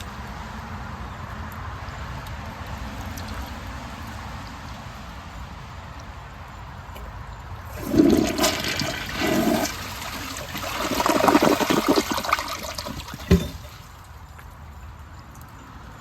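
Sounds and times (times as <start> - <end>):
toilet flushing: 7.7 - 13.9.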